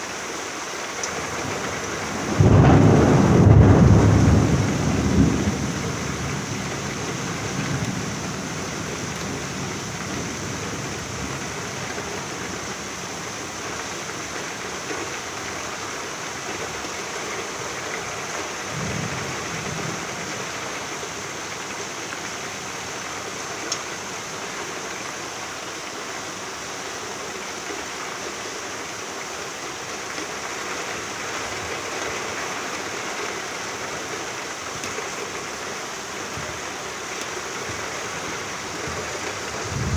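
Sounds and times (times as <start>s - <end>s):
steady rain hiss: 0.0s - 39.9s
thunder rumble: 1.4s - 13.4s, 18.6s - 20.8s, 37.7s - 39.9s.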